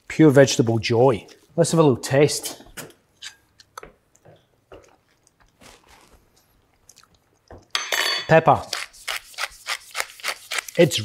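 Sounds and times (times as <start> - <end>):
faint chewing: 3.6 - 7.7.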